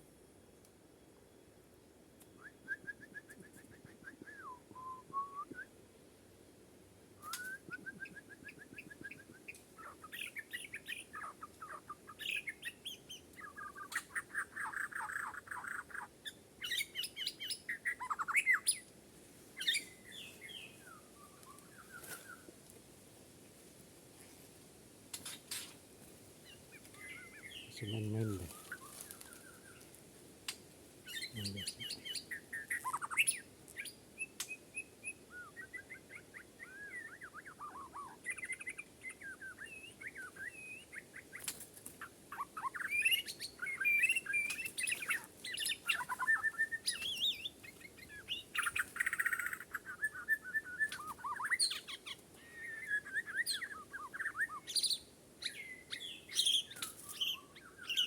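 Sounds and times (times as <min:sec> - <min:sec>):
bird singing whistled phrases: 0:02.4 - 0:05.7, 0:07.2 - 0:12.6, 0:36.6 - 0:40.9, 0:42.6 - 0:47.5, 0:48.2 - 0:58.0.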